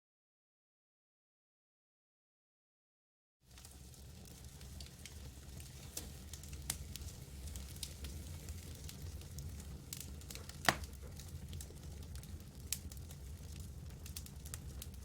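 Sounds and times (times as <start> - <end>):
campfire crackling: 3.5 - 15.0.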